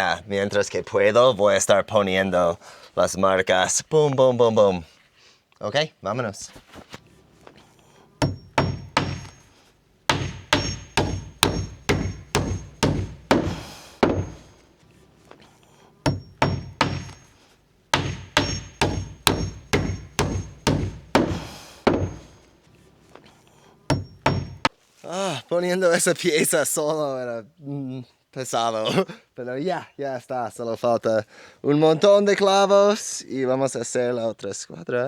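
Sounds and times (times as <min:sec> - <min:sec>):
hammer driving nails into wood: 0:08.2 - 0:14.7, 0:16.0 - 0:22.6, 0:23.9 - 0:24.8.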